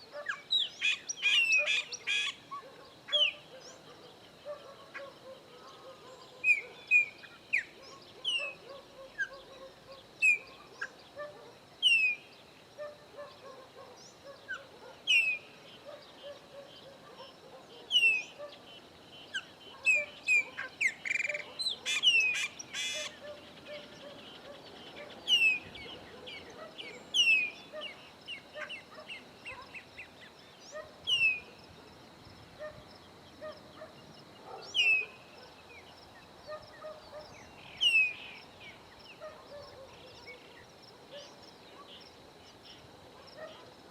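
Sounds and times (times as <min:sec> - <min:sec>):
blackbirds calling: 0:00.0 - 0:31.6, 0:32.6 - 0:43.7.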